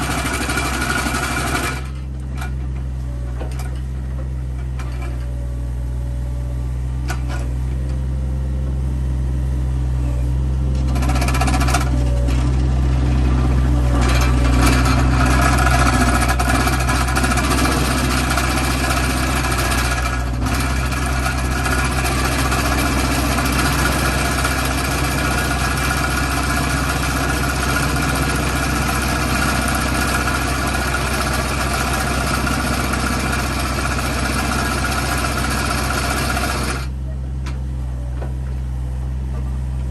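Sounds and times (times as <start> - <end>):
excavator diesel engine: 0.0 - 39.9
vibrating compaction bucket rattle: 14.2 - 36.9.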